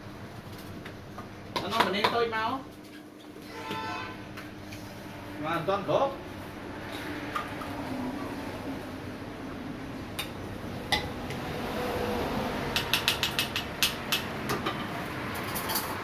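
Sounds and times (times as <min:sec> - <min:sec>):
steady background hum: 0:00.0 - 0:16.0
coffee machine clicks and clacks: 0:12.7 - 0:14.9.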